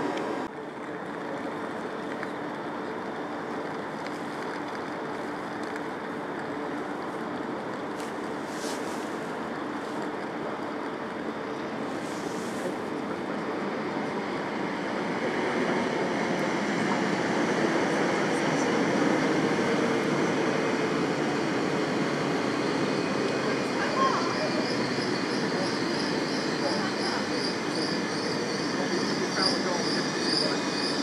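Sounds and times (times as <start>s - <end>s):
train wheels rumbling on rail: 0.0s - 31.0s
high pulsing wheel squeal: 22.6s - 31.0s.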